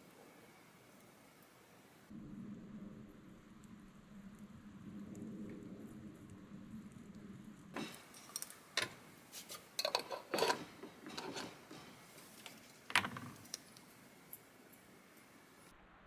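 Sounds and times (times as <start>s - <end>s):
dishes and cutlery clinking: 7.8s - 15.7s.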